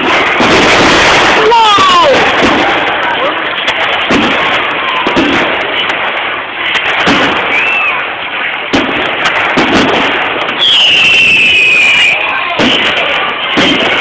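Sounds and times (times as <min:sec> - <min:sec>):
fireworks crackling: 0:00.0 - 0:14.0
sharp firework bangs: 0:00.0 - 0:14.0
whistling firework falling pitch: 0:07.0 - 0:08.2, 0:09.5 - 0:14.0.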